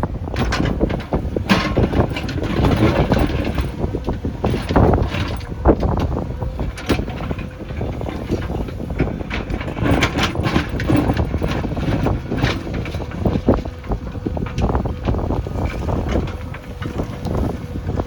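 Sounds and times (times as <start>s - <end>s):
diesel engine running under load: 0.0s - 18.0s
wind noise on microphone: 0.0s - 18.0s
machine knocks and clanks: 0.2s - 18.0s.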